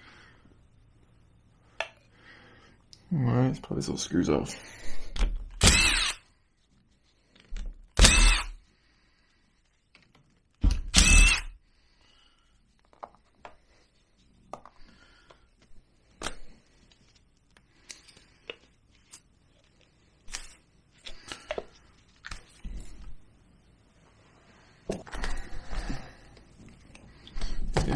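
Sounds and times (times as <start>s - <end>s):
power driver whirring: 5.6s - 6.2s, 7.9s - 8.6s, 10.8s - 11.6s.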